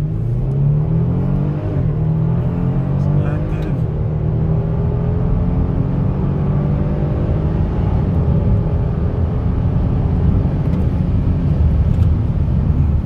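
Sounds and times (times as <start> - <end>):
car engine accelerating: 0.0 - 13.0
road rumble: 0.0 - 13.0.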